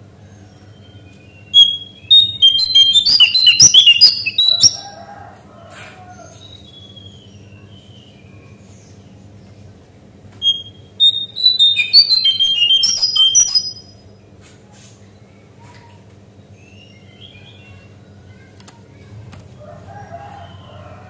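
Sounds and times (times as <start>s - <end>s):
bird singing whistled notes: 0.8s - 5.0s, 10.4s - 14.0s.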